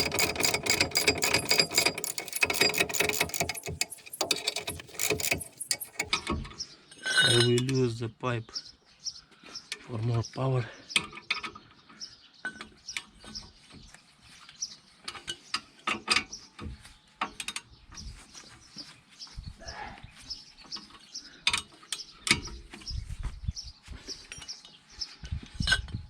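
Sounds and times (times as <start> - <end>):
ratchet wrench clicking: 0.0 - 6.2
steel tools knocking: 0.0 - 6.2.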